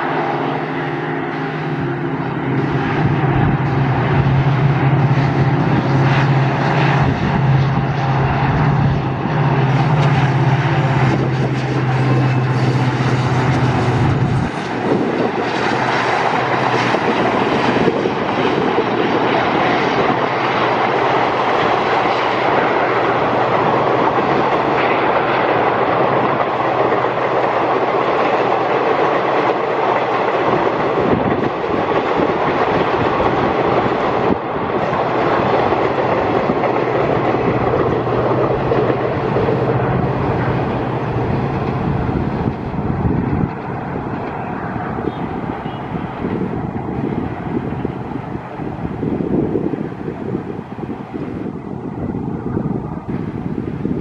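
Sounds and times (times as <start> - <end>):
wheels clacking over rail joints: 0.0 - 49.0
diesel locomotive engine droning: 0.0 - 54.0
train coaches rumbling past: 0.0 - 54.0.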